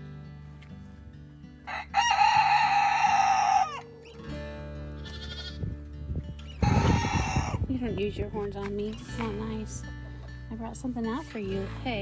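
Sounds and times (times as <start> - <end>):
soft background music: 0.0 - 12.0
rooster crowing: 1.6 - 4.1, 6.6 - 7.6.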